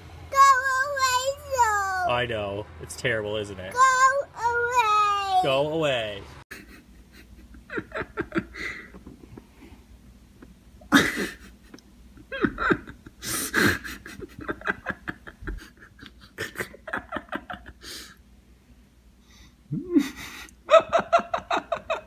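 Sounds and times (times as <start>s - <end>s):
person laughing: 6.5s - 9.6s, 10.4s - 18.1s, 19.7s - 22.0s
person breathing hard: 8.5s - 9.9s, 13.2s - 14.1s, 17.8s - 18.2s.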